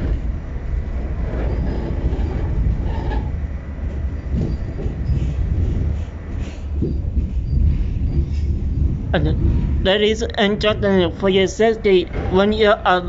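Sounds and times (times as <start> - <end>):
subway wheels rumbling on rails: 0.0 - 13.0
wheel squeals: 1.2 - 3.4, 4.0 - 5.4.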